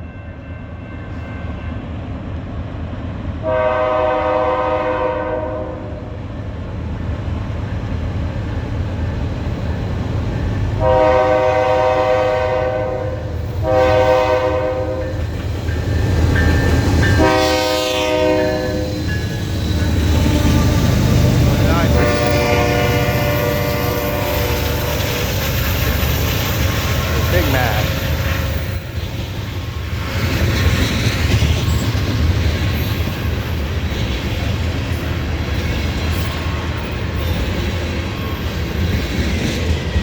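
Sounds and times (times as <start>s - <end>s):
train air horn blasts: 3.4s - 6.1s, 10.8s - 15.2s, 17.2s - 19.1s, 20.1s - 25.2s.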